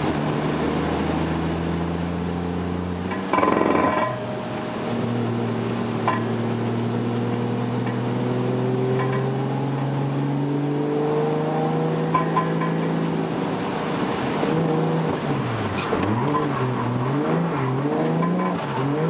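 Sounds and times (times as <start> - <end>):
car engine revving: 0.0 - 19.0
clunk: 3.0 - 4.4, 6.0 - 6.4, 8.9 - 9.4, 12.1 - 13.0.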